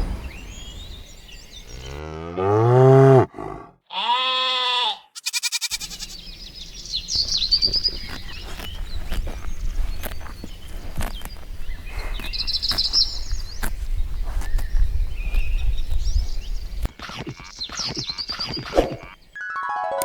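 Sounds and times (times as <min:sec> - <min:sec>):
birds chirping: 0:00.0 - 0:03.2, 0:05.2 - 0:19.4
cattle mooing: 0:01.7 - 0:04.9.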